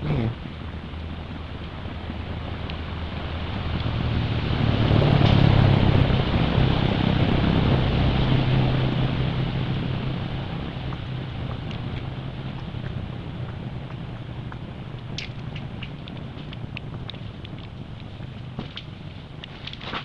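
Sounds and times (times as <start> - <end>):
vehicle engine passing: 0.0 - 20.0.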